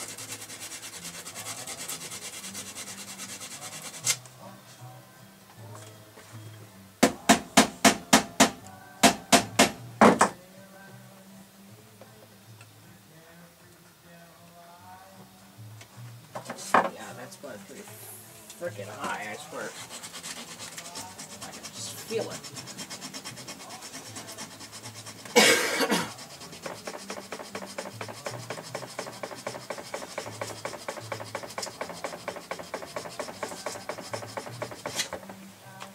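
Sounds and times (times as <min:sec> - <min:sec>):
fast rubbing strokes: 0:00.0 - 0:04.2, 0:18.7 - 0:35.3
faint background music: 0:00.0 - 0:35.9
sharp knocks: 0:07.0 - 0:10.4
person coughing: 0:25.4 - 0:26.1.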